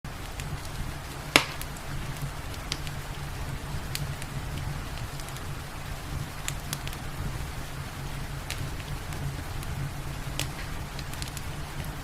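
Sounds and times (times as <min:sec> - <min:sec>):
fireplace fire crackling: 0:00.1 - 0:12.0
light hiss of rain: 0:00.1 - 0:12.0
steady low rumble: 0:00.1 - 0:12.0
sharp pops of fire: 0:00.2 - 0:05.5, 0:06.4 - 0:07.1, 0:08.4 - 0:12.0.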